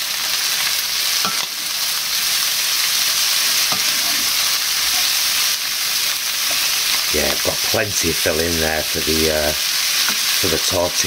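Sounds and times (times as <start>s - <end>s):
filling sizzling in frying pan: 0.0s - 11.0s
spatula scraping and tapping pan: 1.2s - 1.5s, 3.6s - 5.1s, 10.0s - 10.4s.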